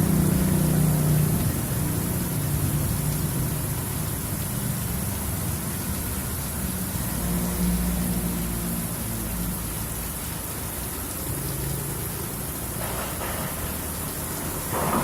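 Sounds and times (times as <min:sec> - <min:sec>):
vehicle engine humming: 0:00.0 - 0:06.0
heavy rain hissing: 0:00.0 - 0:15.0.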